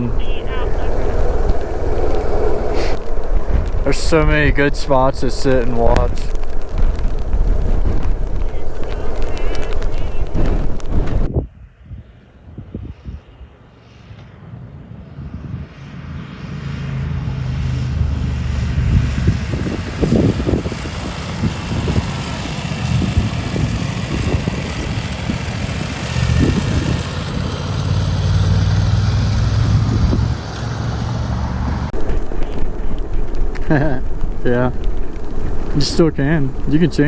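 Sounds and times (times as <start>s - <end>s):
wind on microphone: 0.0s - 13.8s, 14.4s - 16.0s, 17.2s - 37.0s
motorcycle engine accelerating: 14.2s - 36.3s.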